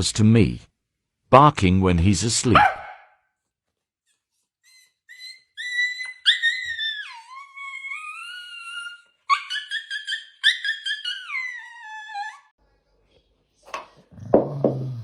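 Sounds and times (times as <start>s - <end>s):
dog whining: 4.6s - 12.5s.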